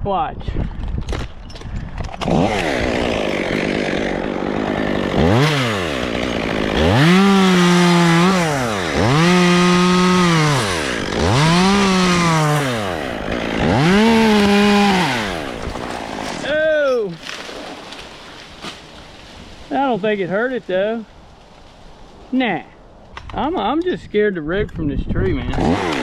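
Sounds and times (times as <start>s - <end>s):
chainsaw cutting wood: 2.0s - 19.8s, 25.4s - 26.0s.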